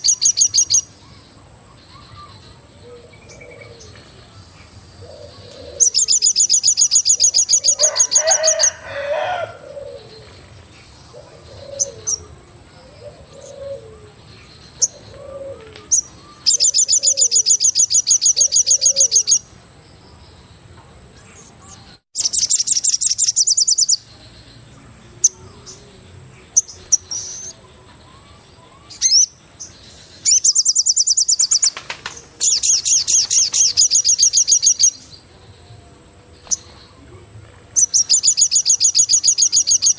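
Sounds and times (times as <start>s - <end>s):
dove cooing: 2.8s - 4.0s, 5.0s - 6.1s, 7.8s - 10.4s, 11.1s - 15.9s, 16.5s - 17.5s, 18.4s - 19.3s.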